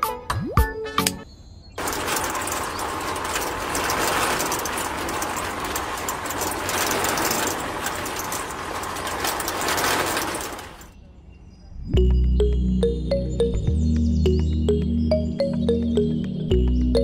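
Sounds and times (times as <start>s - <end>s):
small motor rattling whir: 1.8s - 11.0s.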